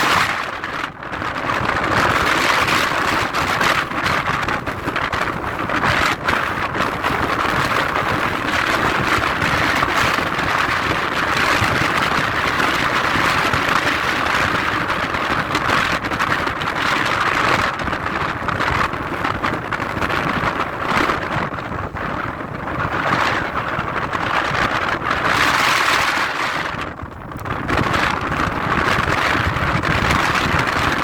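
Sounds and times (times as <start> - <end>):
jet engine roar: 0.0 - 6.2, 19.5 - 31.0.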